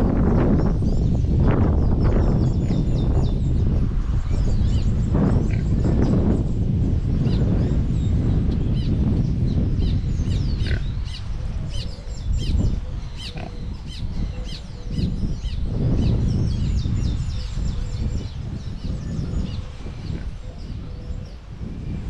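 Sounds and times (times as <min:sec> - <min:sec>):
small birds chirping: 0:00.6 - 0:06.4, 0:07.2 - 0:21.6.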